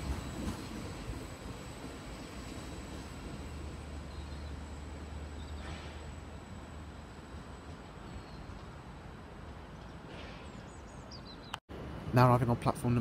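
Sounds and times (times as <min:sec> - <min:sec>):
electric train rumble: 0:00.0 - 0:10.7.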